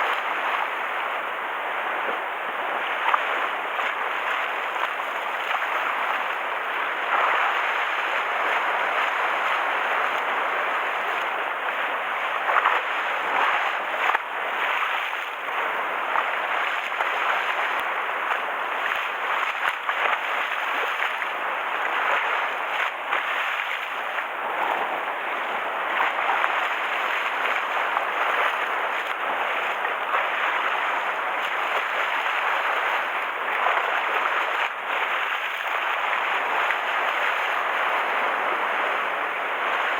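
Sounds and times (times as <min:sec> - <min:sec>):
sea waves splashing on shore: 0:00.0 - 0:39.9.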